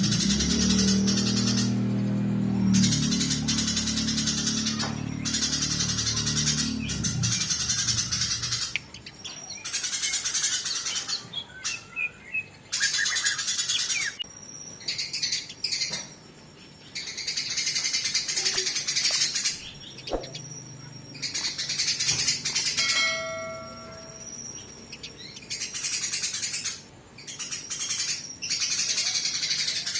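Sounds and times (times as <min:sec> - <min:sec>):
sparrows chirping harshly: 0:00.0 - 0:29.9.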